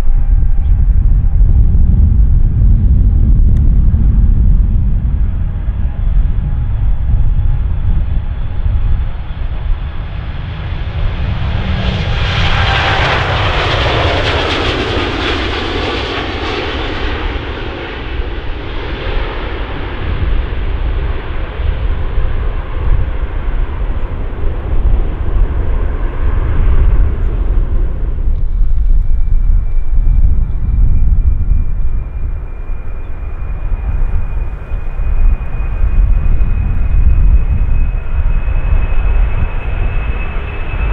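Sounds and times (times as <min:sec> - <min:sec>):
jet airliner passing by: 0:00.0 - 0:40.9
low rumble: 0:00.0 - 0:40.9
thin high whine: 0:22.4 - 0:40.9.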